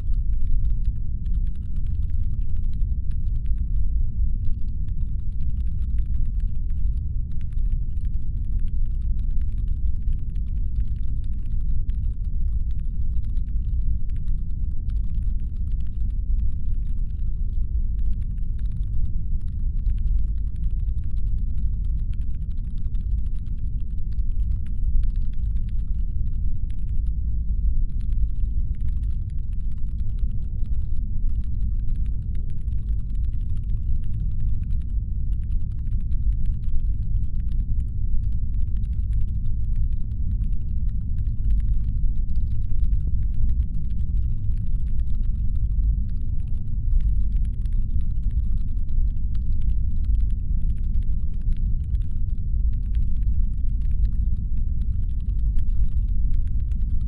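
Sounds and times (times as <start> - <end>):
deep rumbling brown noise: 0.0 - 57.0
faint crackle of tiny clicks: 0.0 - 57.0.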